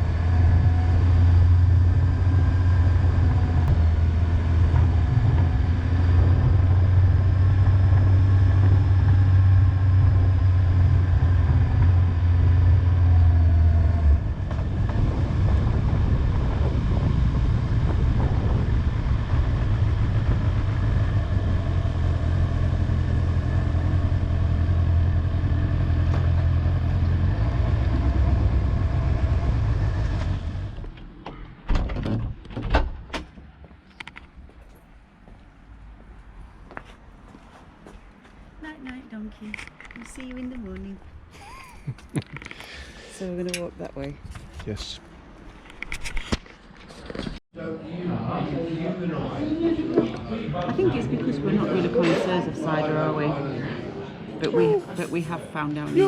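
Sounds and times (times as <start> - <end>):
motorcycle engine drone: 0.0 - 31.4.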